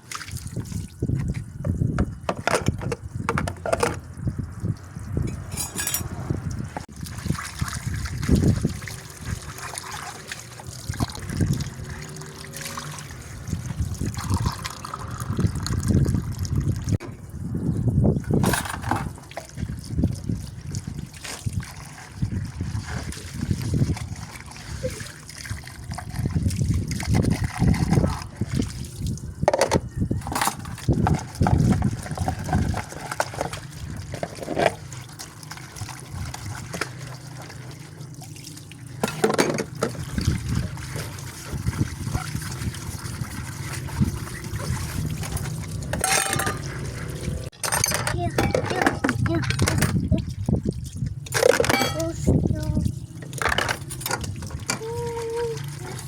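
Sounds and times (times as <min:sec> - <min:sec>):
water trickling and sloshing: 0:00.0 - 0:56.0
dishes clattering: 0:02.3 - 0:04.0, 0:05.3 - 0:06.1, 0:29.5 - 0:31.2, 0:39.0 - 0:39.8, 0:45.3 - 0:46.9, 0:47.5 - 0:50.0, 0:51.3 - 0:52.2
dishes knocking: 0:05.3 - 0:06.1, 0:29.5 - 0:30.6, 0:46.0 - 0:46.7, 0:51.5 - 0:52.0.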